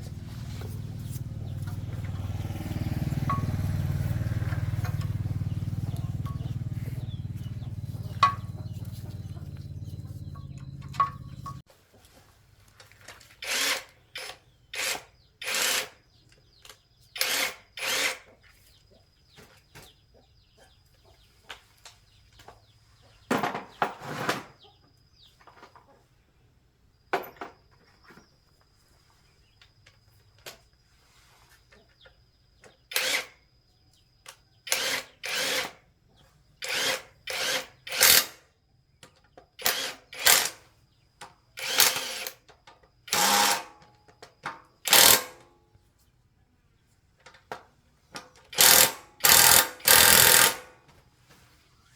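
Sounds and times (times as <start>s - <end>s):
short bursts of tool noise: 13.2s - 16.0s, 17.2s - 18.4s, 32.9s - 33.4s, 34.7s - 35.8s, 36.6s - 38.4s, 39.6s - 40.6s, 41.6s - 42.5s, 43.1s - 43.8s, 44.8s - 45.4s, 48.5s - 50.8s.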